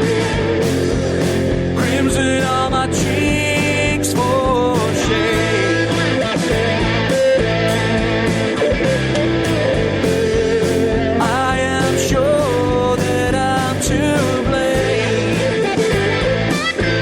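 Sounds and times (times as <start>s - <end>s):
rock song with guitar and drums: 0.0s - 17.0s.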